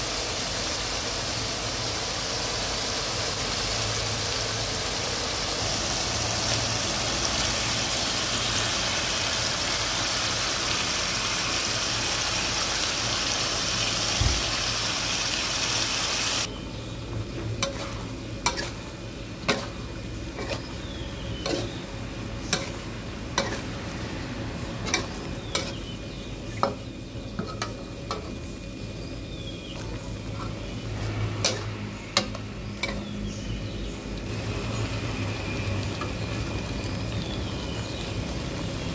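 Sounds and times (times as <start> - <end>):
meat sizzling in a wok: 0.0 - 38.9
metal spatula scraping a wok: 17.6 - 26.0, 26.6 - 28.4, 30.2 - 33.2.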